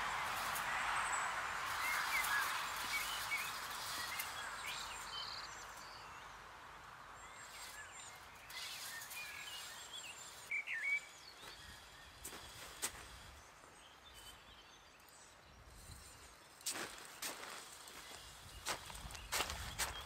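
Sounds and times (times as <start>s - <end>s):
outdoor background rush: 0.0s - 20.0s
small birds chirping: 0.0s - 20.0s.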